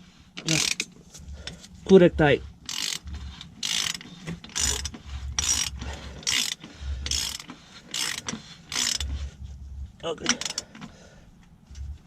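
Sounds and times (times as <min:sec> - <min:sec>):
ratchet wrench clicking: 0:00.4 - 0:00.9, 0:02.6 - 0:09.2, 0:10.3 - 0:10.6.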